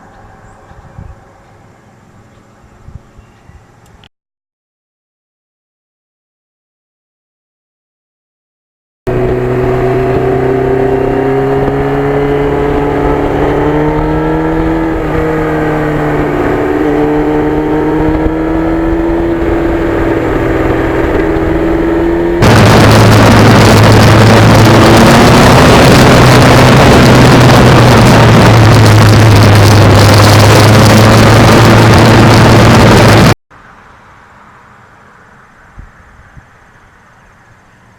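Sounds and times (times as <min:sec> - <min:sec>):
dense rushing noise: 0:09.1 - 0:33.4
motorcycle engine running: 0:09.1 - 0:33.4.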